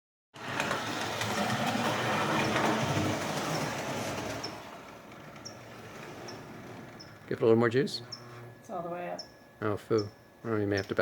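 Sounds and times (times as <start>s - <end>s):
toy train motor and wheels: 0.4s - 7.2s
faint high squeaks: 8.0s - 11.0s.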